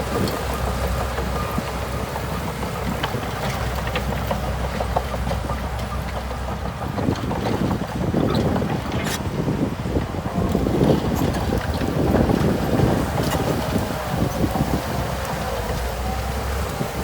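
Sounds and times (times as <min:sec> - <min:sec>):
bulldozer diesel engine running: 0:00.0 - 0:17.0
wind on microphone: 0:06.6 - 0:17.0.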